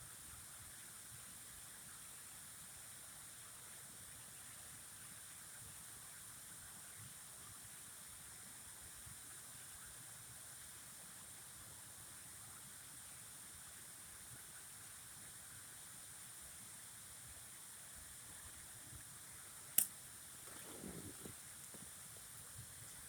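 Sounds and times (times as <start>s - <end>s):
faint running water: 11.3s - 23.0s.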